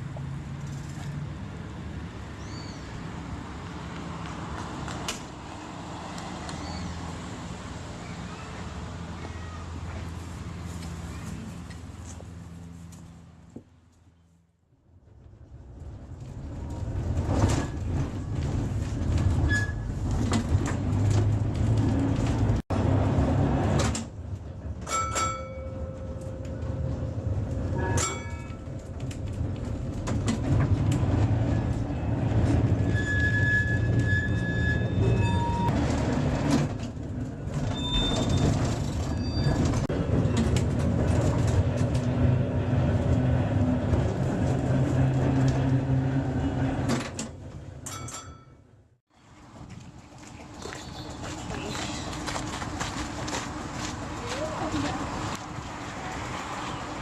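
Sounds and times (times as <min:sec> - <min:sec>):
tram wheels and motors rumbling: 0:00.0 - 0:57.0
brief high squeal: 0:32.9 - 0:35.7.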